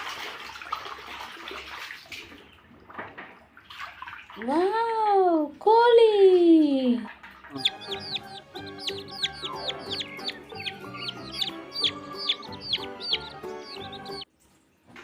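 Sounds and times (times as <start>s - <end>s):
background music: 7.5s - 14.3s
chicks cheeping: 7.5s - 14.3s.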